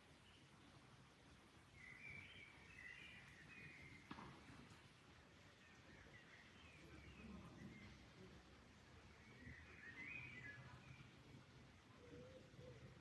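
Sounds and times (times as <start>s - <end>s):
soft steady background noise: 0.0s - 13.0s
small birds chirping: 9.1s - 13.0s.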